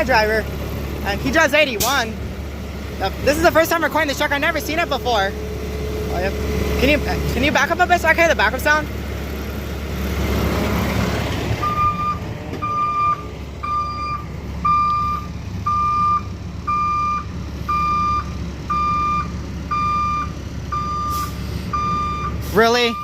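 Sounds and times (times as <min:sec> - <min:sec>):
truck engine rumbling: 0:00.0 - 0:23.0
backup alarm beeping: 0:11.6 - 0:23.0.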